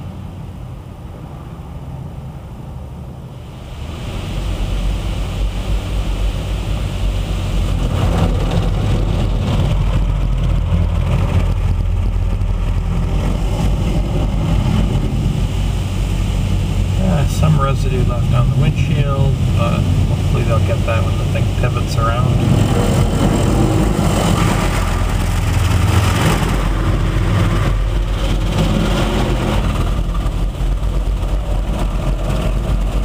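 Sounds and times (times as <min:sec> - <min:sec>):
car wash machinery rumbling: 0:00.0 - 0:33.0
water spraying hiss: 0:03.4 - 0:09.7, 0:13.2 - 0:31.4.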